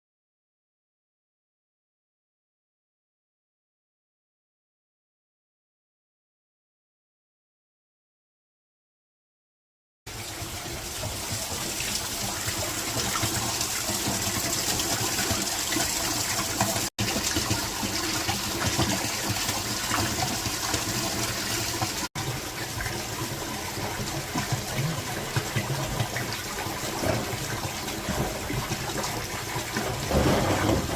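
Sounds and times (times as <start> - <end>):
water flowing and splashing: 10.1 - 30.9.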